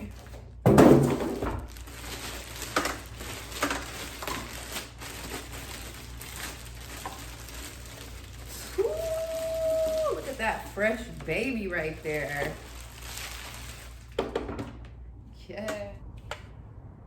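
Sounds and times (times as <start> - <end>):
packaging rustling and scraping: 0.0 - 14.5
packaging crinkling: 1.2 - 14.3.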